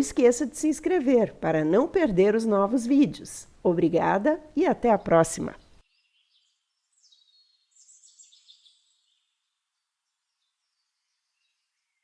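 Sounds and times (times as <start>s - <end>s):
faint high bird chirps: 5.5s - 12.0s.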